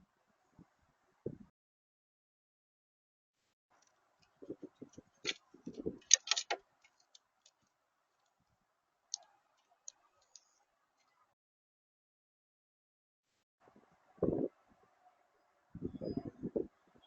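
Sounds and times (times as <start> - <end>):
birds pecking and tapping: 3.7 - 8.4, 9.1 - 11.1.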